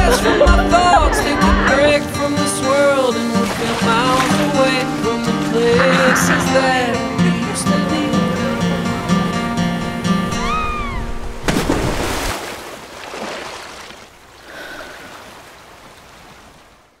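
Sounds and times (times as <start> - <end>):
music with pulsing bass: 0.0 - 2.0
water splash: 2.4 - 7.6, 10.4 - 16.8.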